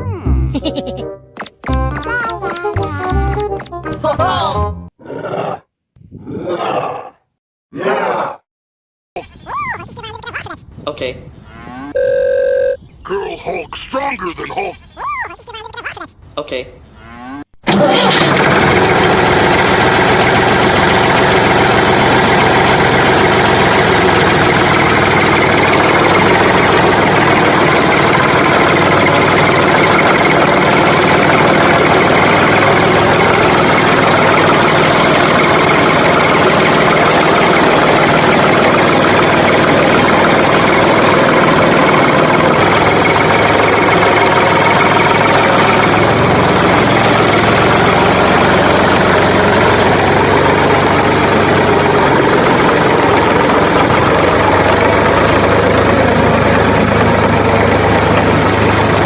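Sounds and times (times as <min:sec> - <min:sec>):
engine running: 0:17.6 - 0:59.0.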